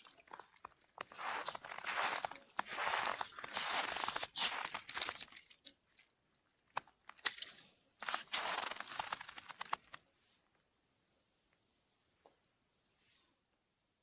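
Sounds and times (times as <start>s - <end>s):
snow and ice crunching: 0.0s - 5.6s, 6.8s - 10.0s.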